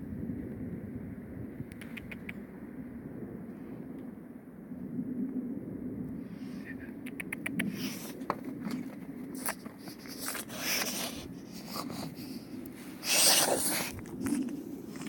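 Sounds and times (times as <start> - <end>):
gloves rustling against microphone: 7.7 - 15.0.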